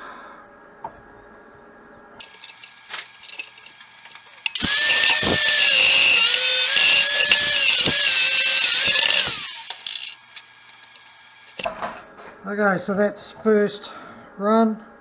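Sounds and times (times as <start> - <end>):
angle grinder on steel: 2.2 - 11.7.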